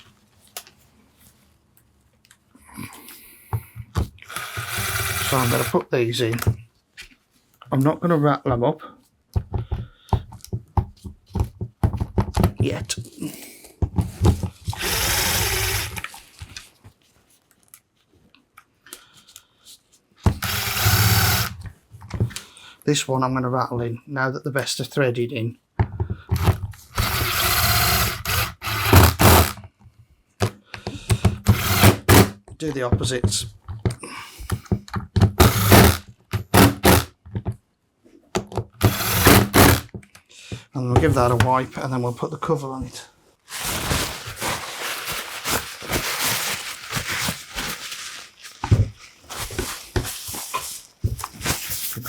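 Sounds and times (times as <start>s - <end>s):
cordless power driver running screws: 4.2s - 6.5s, 14.7s - 16.2s, 20.3s - 21.6s, 26.4s - 29.6s, 31.4s - 32.4s, 35.3s - 37.1s, 38.8s - 39.9s
handling clicks and knocks: 29.2s - 37.6s.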